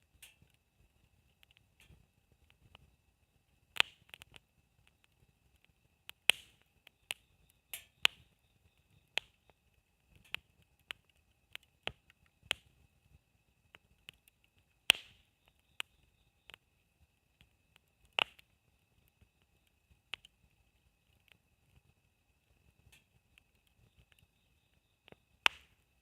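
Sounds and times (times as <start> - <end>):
campfire crackling: 0.0 - 26.0
wood popping and snapping: 3.8 - 8.3, 9.2 - 12.7, 13.8 - 16.0, 17.4 - 20.4, 25.0 - 25.9.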